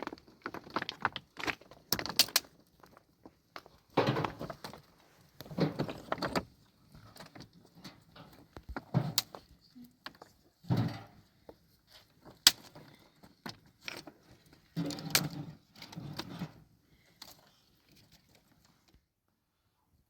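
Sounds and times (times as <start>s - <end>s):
hard objects knocking and clattering: 0.0s - 9.4s.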